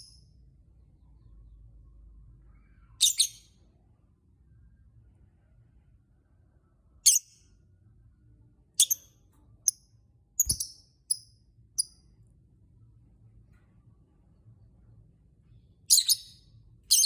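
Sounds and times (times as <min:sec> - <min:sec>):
bird chirping shrilly: 0:10.4 - 0:10.8.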